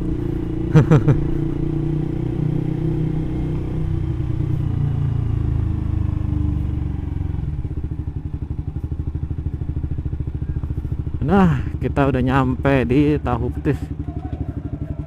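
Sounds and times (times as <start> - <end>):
motorcycle engine bassy exhaust: 0.0 - 15.0.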